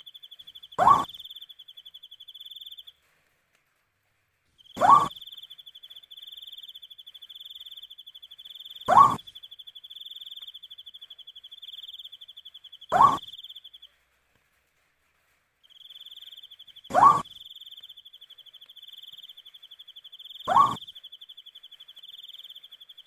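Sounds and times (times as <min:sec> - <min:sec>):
owl calling: 0:00.0 - 0:02.9, 0:04.7 - 0:06.8, 0:08.6 - 0:13.8, 0:15.9 - 0:19.3, 0:20.1 - 0:21.4.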